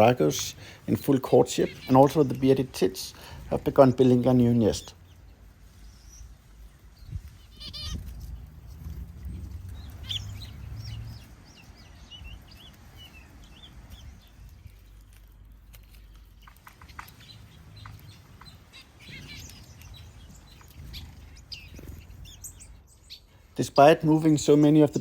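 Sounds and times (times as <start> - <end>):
small birds chirping: 0.0 - 25.0
low rumble: 7.9 - 12.6.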